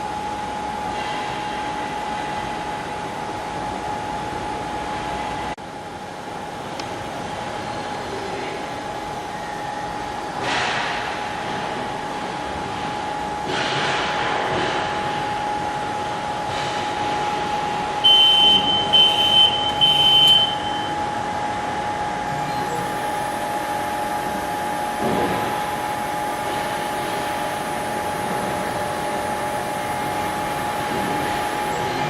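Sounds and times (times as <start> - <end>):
fan hum: 0.0 - 32.0
constant tone: 17.9 - 32.0
short high buzzer beeps: 18.0 - 21.0.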